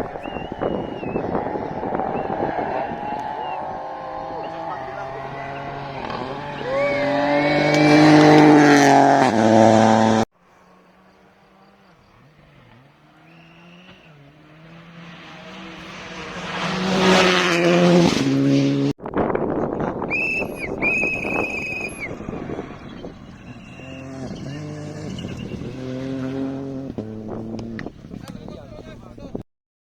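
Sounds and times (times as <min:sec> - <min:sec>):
high whistle: 0:00.0 - 0:07.6, 0:20.1 - 0:22.3
car passing by: 0:00.0 - 0:18.9, 0:21.7 - 0:29.2
rally car engine at high revs: 0:00.0 - 0:19.0, 0:20.5 - 0:28.3
tyres rushing on road: 0:00.0 - 0:29.4.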